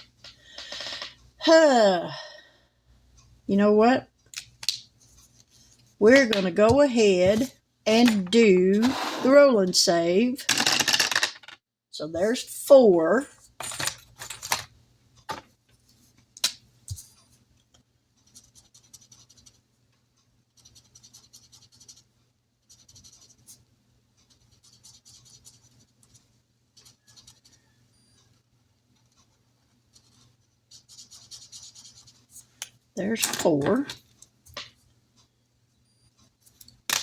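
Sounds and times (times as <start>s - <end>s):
pen scratching on paper: 22.6s - 23.5s, 24.3s - 26.2s, 29.9s - 32.3s.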